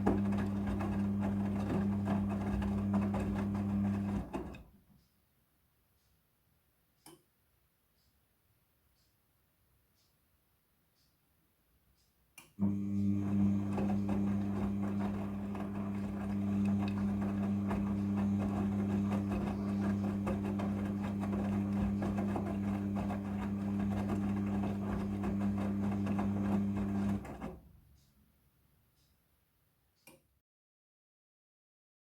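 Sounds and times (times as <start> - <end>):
clothes and water churning: 0.0 - 4.6, 12.6 - 27.6
washing machine motor hum: 0.0 - 4.7, 12.6 - 27.8.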